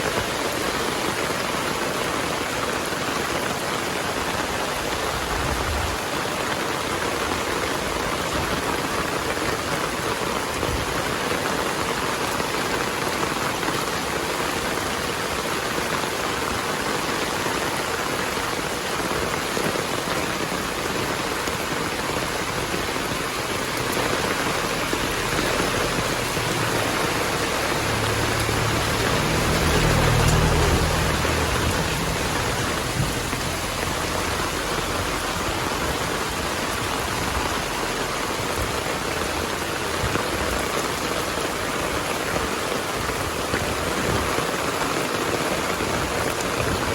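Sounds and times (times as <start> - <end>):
heavy rain falling: 0.0 - 46.9
distant thunder rumble: 23.9 - 36.2.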